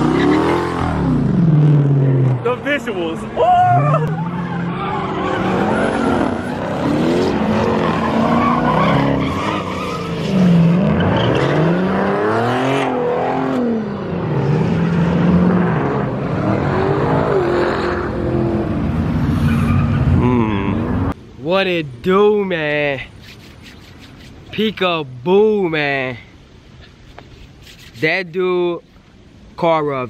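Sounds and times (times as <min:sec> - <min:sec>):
car engines revving: 0:00.0 - 0:21.2
tyres skidding: 0:00.0 - 0:21.2.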